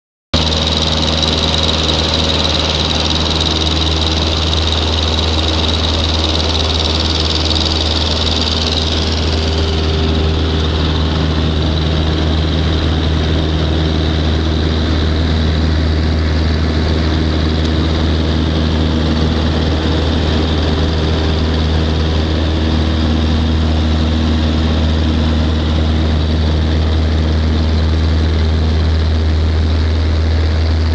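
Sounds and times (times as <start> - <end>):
light airplane engine and propeller: 0.4 - 30.9.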